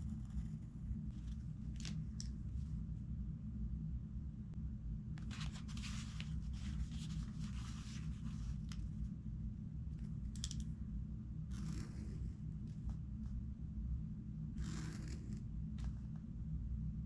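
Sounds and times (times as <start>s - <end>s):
book pages rustling: 0.0s - 2.7s, 5.2s - 9.1s
steady low hum: 0.0s - 17.0s.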